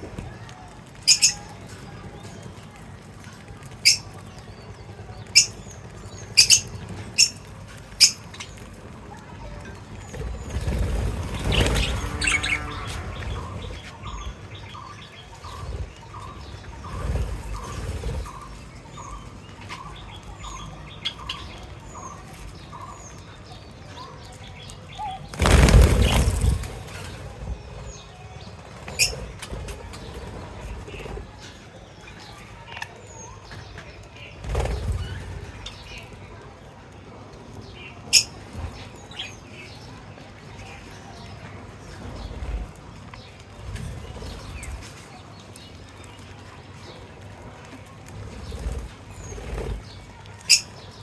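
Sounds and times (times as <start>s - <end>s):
wing flapping: 0.0s - 22.6s, 24.7s - 32.5s, 33.6s - 36.4s, 41.6s - 51.0s
small cage birds chirping: 0.0s - 51.0s.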